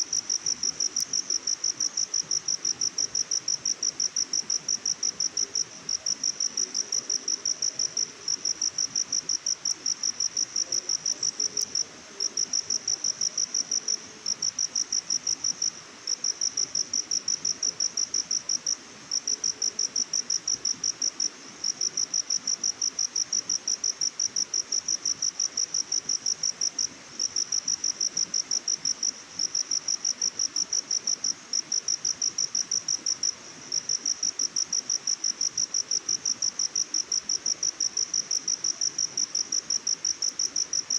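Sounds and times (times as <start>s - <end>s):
insect chirping: 0.1s - 40.9s.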